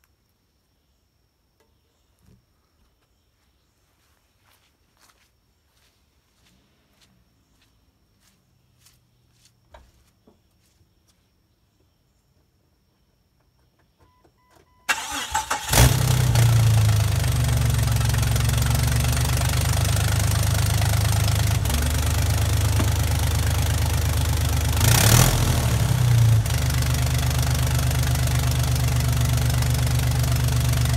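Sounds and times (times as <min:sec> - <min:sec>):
engine cranking and starting: 0:14.9 - 0:18.8
engine idling: 0:14.9 - 0:30.9
engine revving: 0:14.9 - 0:30.9.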